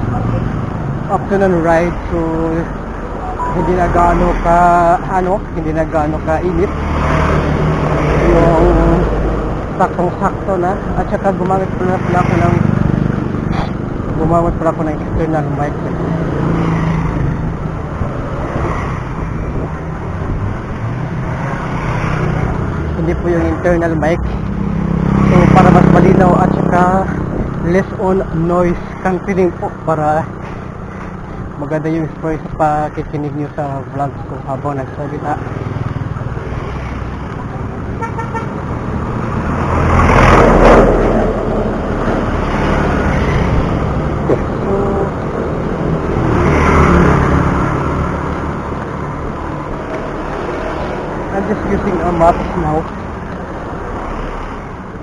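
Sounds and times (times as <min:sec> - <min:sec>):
engine hum: 0:00.0 - 0:55.0
traffic rushing noise: 0:00.0 - 0:55.0
motor vehicle passing by: 0:06.4 - 0:14.2, 0:15.7 - 0:23.3, 0:24.2 - 0:27.7, 0:35.3 - 0:55.0
wind noise: 0:26.6 - 0:27.7.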